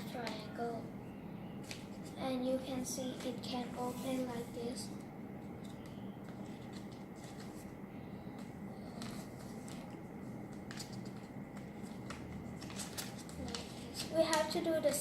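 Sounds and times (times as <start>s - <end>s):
steady low hum: 0.0s - 15.0s
paper rustling and crinkling: 5.6s - 7.7s, 8.9s - 15.0s.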